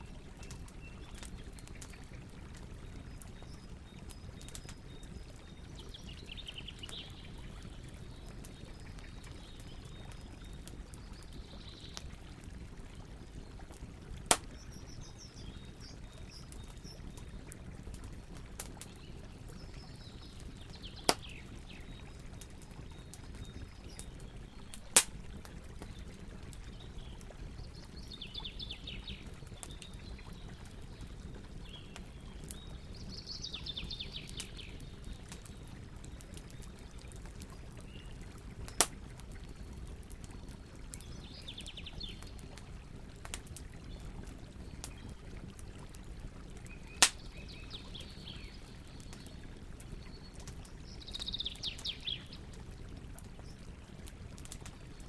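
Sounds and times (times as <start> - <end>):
campfire crackling: 0.0 - 55.0
fire popping loudly: 14.1 - 19.6, 22.9 - 27.7, 46.7 - 47.5.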